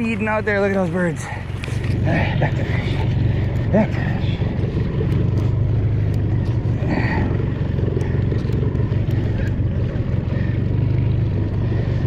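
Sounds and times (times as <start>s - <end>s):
outboard motor running: 0.0s - 12.0s
faint ticks: 4.5s - 6.8s, 7.8s - 9.6s.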